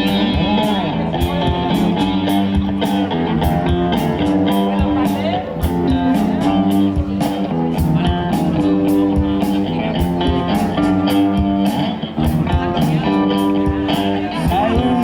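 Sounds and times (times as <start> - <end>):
drums keeping a steady beat: 0.0 - 15.0
electric guitar: 0.0 - 15.0.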